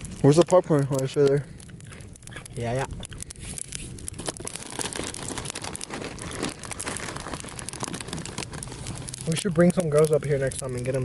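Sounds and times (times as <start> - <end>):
plastic snack bag crinkling: 2.3 - 11.0
plastic bag tearing open: 3.4 - 11.0.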